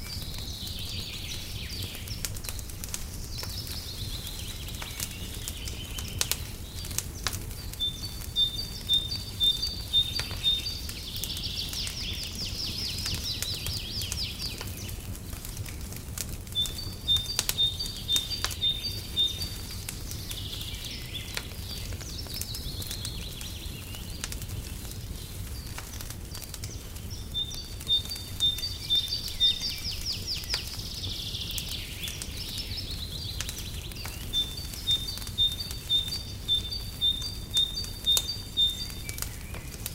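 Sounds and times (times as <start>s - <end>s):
fireplace crackling and popping: 0.0s - 39.9s
songbird singing trilled phrase: 7.8s - 10.8s, 16.6s - 19.6s, 27.2s - 30.5s, 33.9s - 39.5s.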